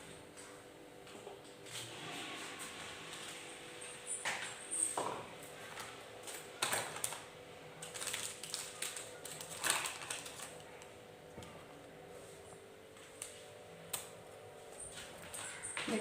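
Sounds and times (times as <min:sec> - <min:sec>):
hard items clattering in fridge: 0:04.1 - 0:10.8.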